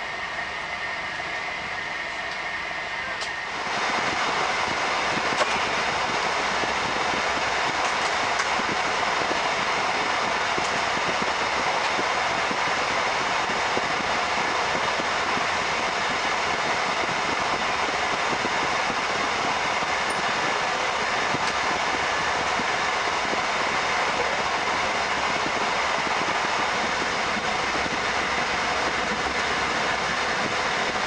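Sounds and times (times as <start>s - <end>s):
train wheels rolling on rails: 0.0s - 31.0s.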